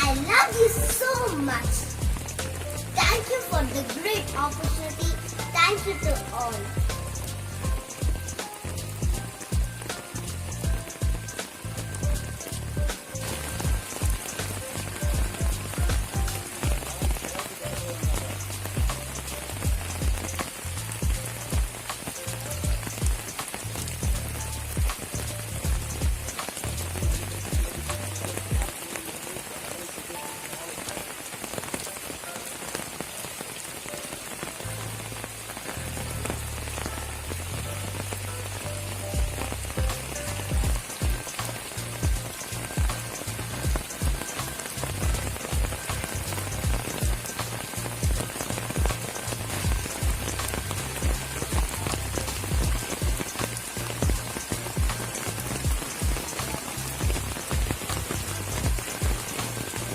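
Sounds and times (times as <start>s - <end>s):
low bass beat: 0.0s - 28.8s, 34.8s - 59.9s
steady rain falling: 0.0s - 59.9s.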